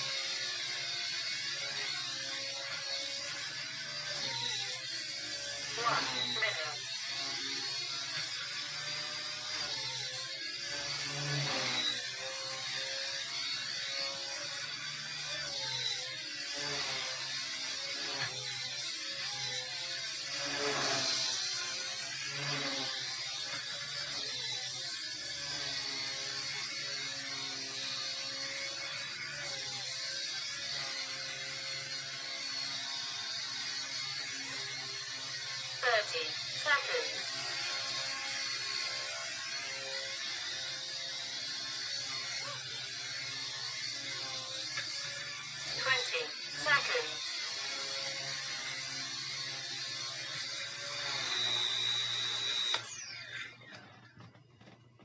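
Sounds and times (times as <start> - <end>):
rc helicopter motor whine: 0.0 - 55.0
click: 44.7 - 44.9, 52.7 - 52.9.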